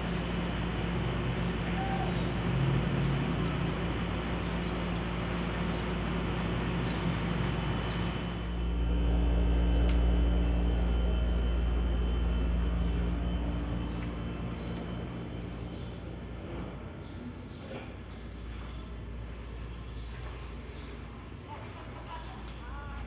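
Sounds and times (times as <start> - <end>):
vehicle engine hum: 0.0 - 17.6.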